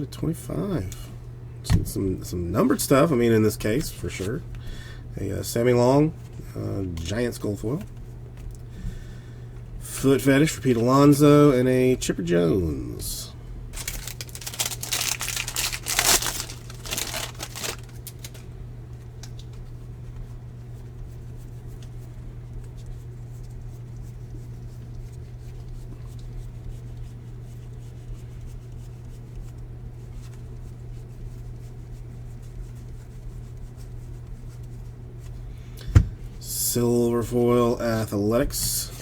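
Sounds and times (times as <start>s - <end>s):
steady low hum: 0.0s - 39.0s
foil wrapper tearing and crinkling: 13.7s - 18.5s.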